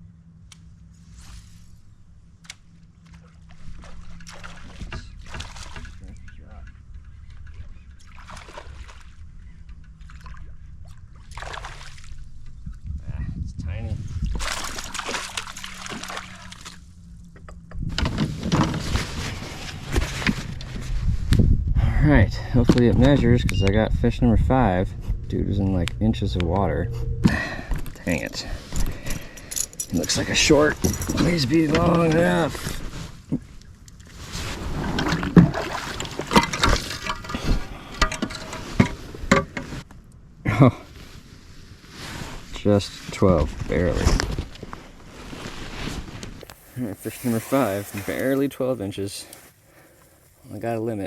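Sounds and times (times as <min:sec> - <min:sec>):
water splashing at a kayak: 0:03.2 - 0:06.0, 0:08.0 - 0:09.2, 0:10.0 - 0:12.3, 0:14.2 - 0:16.9, 0:32.2 - 0:39.3, 0:46.4 - 0:50.2
rustling: 0:44.0 - 0:50.8.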